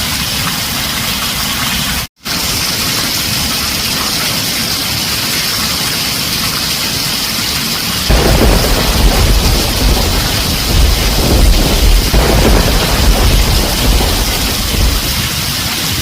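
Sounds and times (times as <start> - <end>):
heavy rain on a tin roof: 0.0 - 16.0
thunder rumbling: 8.1 - 16.0.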